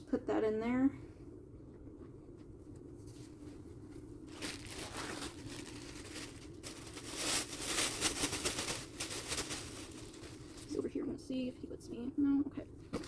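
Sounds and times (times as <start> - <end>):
paper bedding rustling: 3.0 - 10.8.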